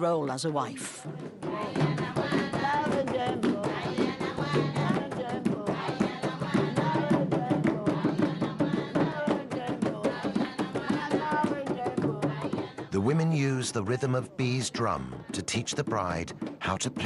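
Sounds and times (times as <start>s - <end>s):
drum beaten in quick rhythm: 0.0s - 17.0s
women singing together: 0.8s - 13.3s.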